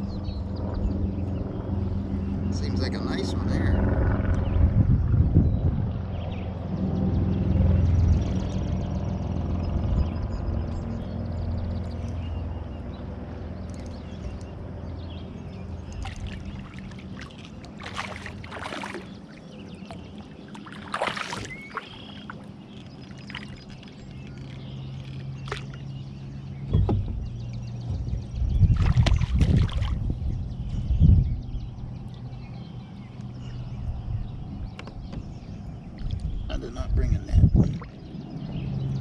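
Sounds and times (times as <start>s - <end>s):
low rumble: 0.0s - 19.2s, 25.7s - 39.0s
water lapping against kayak hull: 15.6s - 30.2s, 37.5s - 38.5s
sharp water splashes: 15.9s - 25.9s, 28.7s - 30.1s.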